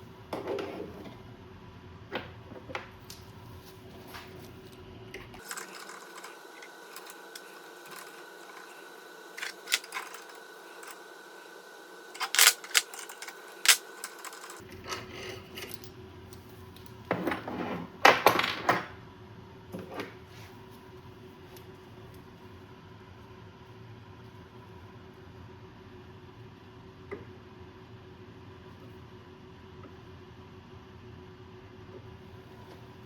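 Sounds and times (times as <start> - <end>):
tools and metal parts clinking: 5.4 - 11.3, 12.1 - 14.6.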